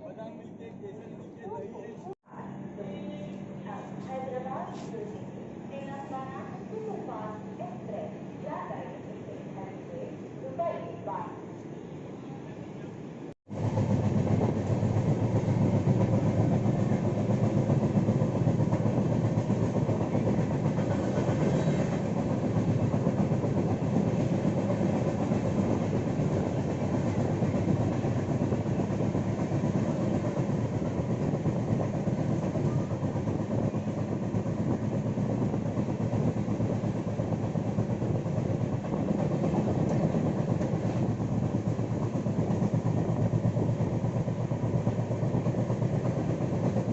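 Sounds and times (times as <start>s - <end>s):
train rumbling and rattling: 12.4s - 46.9s.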